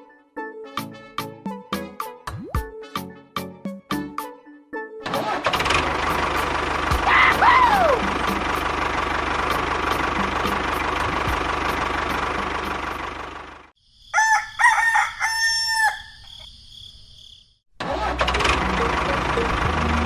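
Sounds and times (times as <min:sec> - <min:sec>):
small engine running: 0:05.1 - 0:13.7, 0:17.8 - 0:20.0
rooster crowing: 0:14.0 - 0:16.6.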